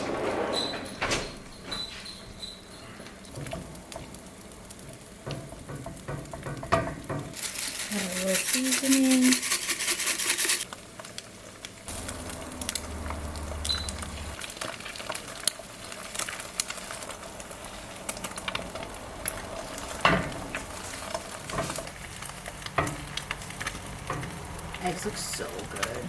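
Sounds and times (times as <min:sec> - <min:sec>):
eggs sizzling in a pan: 0:01.8 - 0:26.0
utensil scraping and tapping pan: 0:05.2 - 0:07.4, 0:22.6 - 0:25.0.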